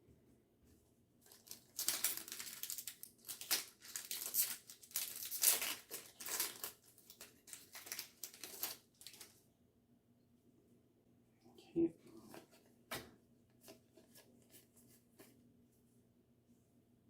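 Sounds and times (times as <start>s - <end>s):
foil wrapper crinkling and tearing: 1.2s - 9.4s.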